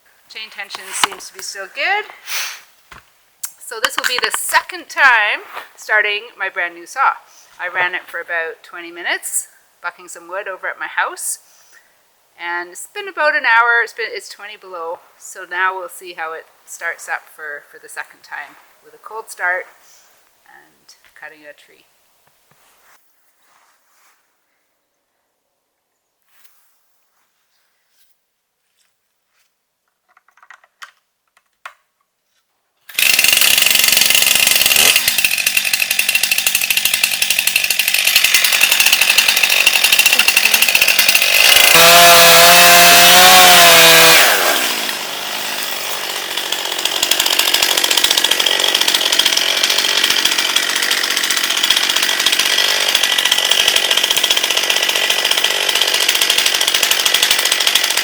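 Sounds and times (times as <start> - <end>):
chainsaw cutting a tree: 0.4 - 2.0, 32.9 - 58.0.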